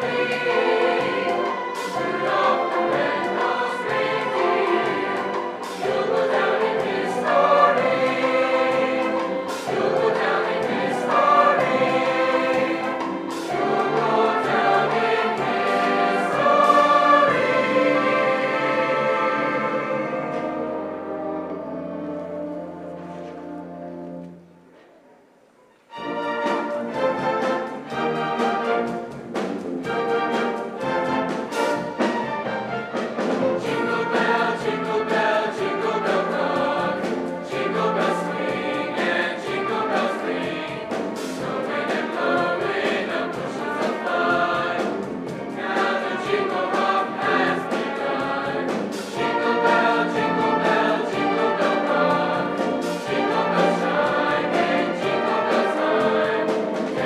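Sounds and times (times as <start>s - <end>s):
voices singing together: 0.0s - 21.9s, 33.2s - 57.0s
instrumental ensemble with brass: 0.0s - 25.1s, 25.7s - 57.0s.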